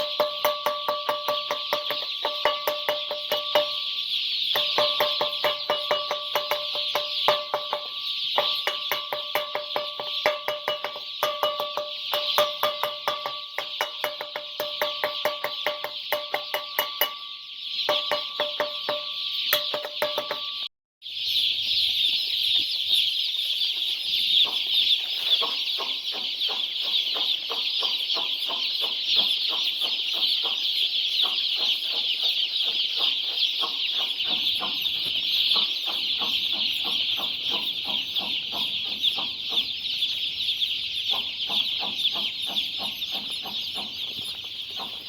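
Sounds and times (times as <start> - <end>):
chickens clucking: 0.0 - 45.0
chicks cheeping: 0.0 - 45.0.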